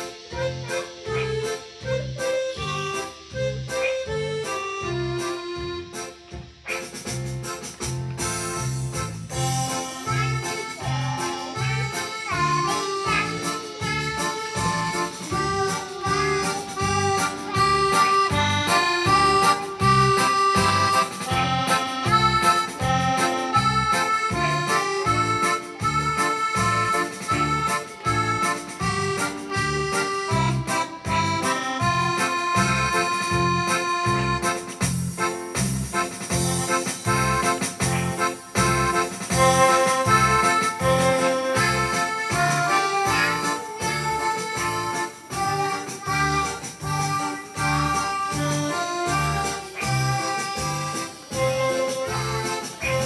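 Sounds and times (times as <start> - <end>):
electronic keyboard melody: 0.0 - 53.0
rhythmic backing with bass: 0.0 - 53.0.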